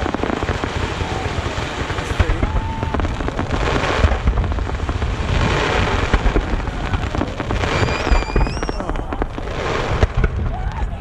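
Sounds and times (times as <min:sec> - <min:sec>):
fireworks crackling: 0:00.0 - 0:11.0
fireworks launch thumps and bursts: 0:01.7 - 0:10.8
whistling tone: 0:07.7 - 0:08.8.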